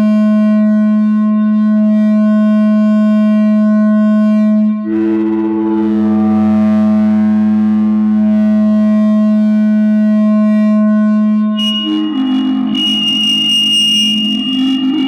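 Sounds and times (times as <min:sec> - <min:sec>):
buzzy feedback drone: 0:00.0 - 0:15.0
high piercing whistle: 0:11.5 - 0:15.0.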